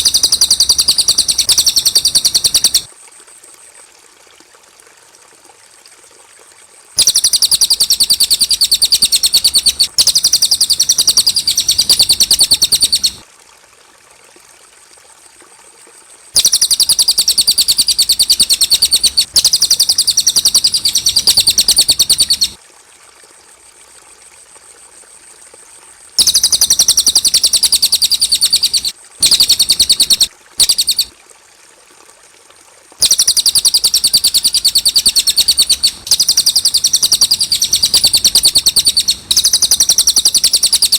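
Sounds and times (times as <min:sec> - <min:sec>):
bird trilling rapidly: 0:00.0 - 0:02.9, 0:07.0 - 0:13.2, 0:16.4 - 0:22.6, 0:26.2 - 0:31.1, 0:33.0 - 0:40.9.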